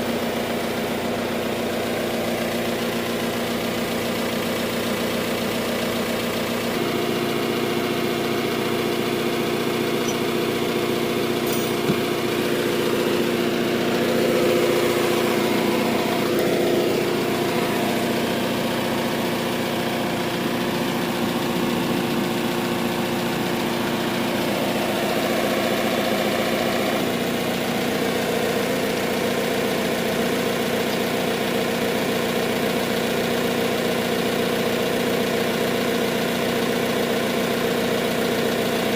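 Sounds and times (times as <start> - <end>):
heavy equipment engine running: 6.8 - 28.1.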